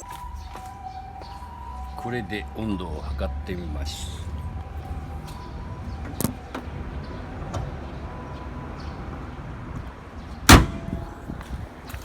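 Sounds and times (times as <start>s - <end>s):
car engine idling: 10.4s - 11.4s.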